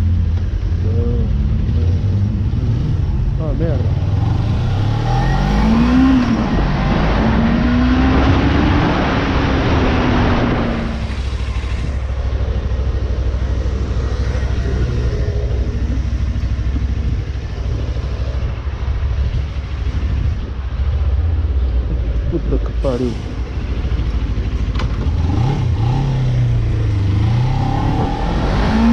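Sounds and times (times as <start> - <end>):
motorcycle engine revving: 0.0 - 22.0, 22.8 - 28.9
wind and road noise: 0.0 - 28.9.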